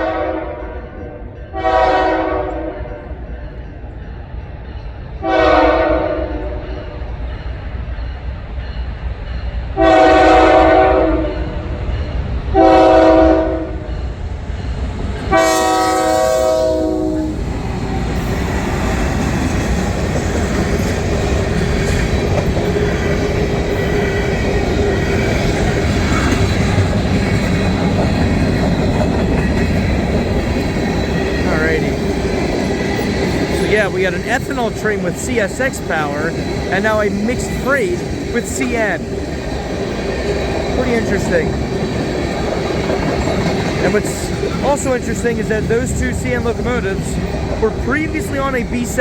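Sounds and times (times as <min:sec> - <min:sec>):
train rolling past rumbling: 0:00.0 - 0:49.0
locomotive air horn blasts: 0:01.5 - 0:02.8, 0:05.2 - 0:06.6, 0:09.8 - 0:11.4, 0:12.6 - 0:13.8, 0:15.3 - 0:17.3
train wheel clatter: 0:06.4 - 0:49.0.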